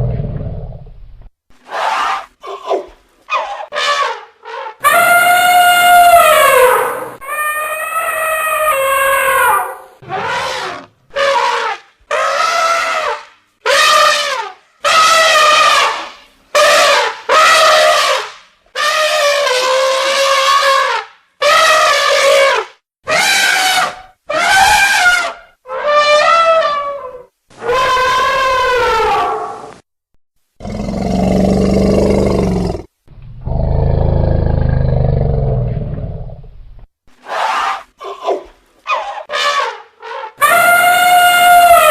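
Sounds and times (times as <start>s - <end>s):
elephants trumpeting: 1.7s - 29.6s, 37.3s - 41.9s
elephant rumbling roars: 30.6s - 36.5s.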